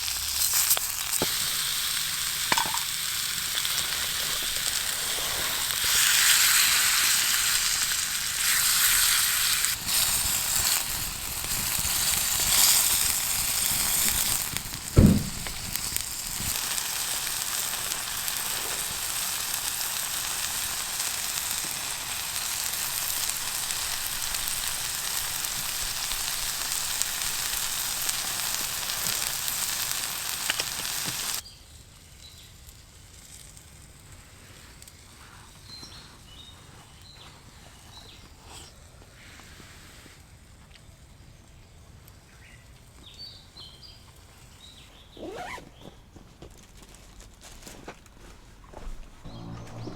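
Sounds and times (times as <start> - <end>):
food sizzling in a pan: 0.0 - 31.4
outdoor background: 0.0 - 49.9
sharp knock: 15.0 - 15.7.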